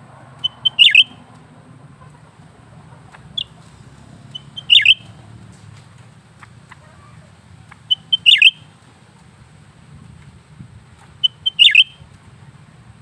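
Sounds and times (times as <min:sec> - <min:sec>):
bird calling: 0:00.3 - 0:01.2, 0:02.0 - 0:09.2, 0:10.9 - 0:12.2.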